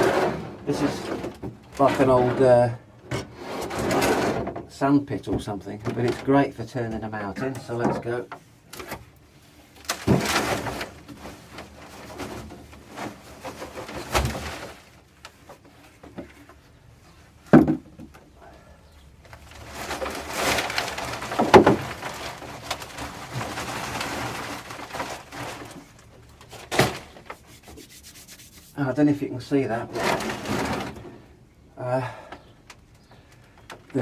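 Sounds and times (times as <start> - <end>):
soil rustling and pouring: 0.0 - 2.8, 19.4 - 31.3.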